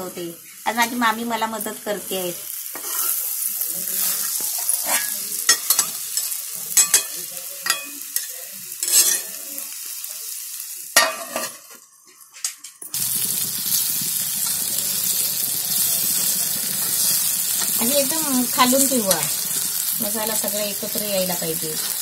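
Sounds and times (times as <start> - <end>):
food frying sizzle: 0.0 - 22.0
metal spatula scraping: 2.7 - 3.3, 3.9 - 7.1, 8.8 - 9.4.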